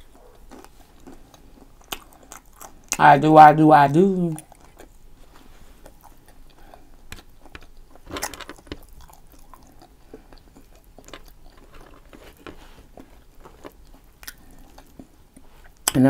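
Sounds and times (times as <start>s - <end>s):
person chewing and crunching: 0.0s - 3.2s, 4.0s - 16.0s.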